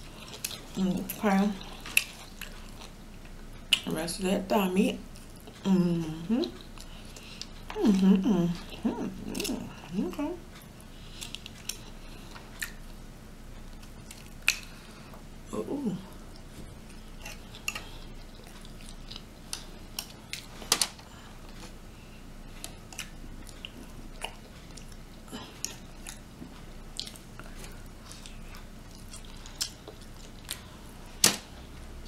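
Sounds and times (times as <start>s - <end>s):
chewing and biting meat: 1.6s - 3.8s, 16.3s - 20.6s, 22.5s - 31.2s.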